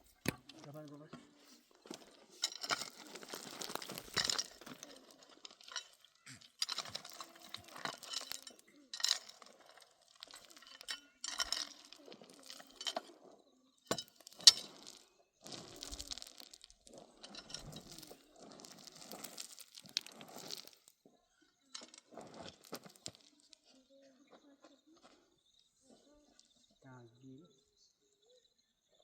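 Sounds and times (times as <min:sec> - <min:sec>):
hard objects clinking and knocking: 0:00.0 - 0:21.0, 0:21.6 - 0:23.6.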